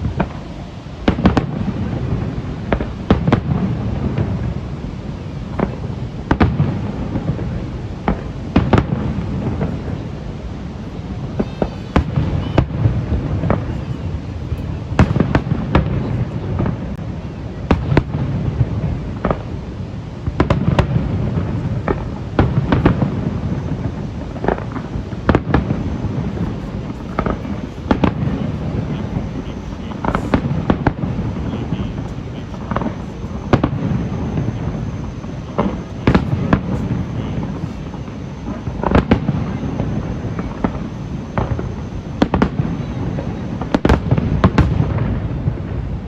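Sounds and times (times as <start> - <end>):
low rumble of booms: 0.0 - 46.0
fireworks shells bursting: 5.5 - 17.0, 20.2 - 42.8.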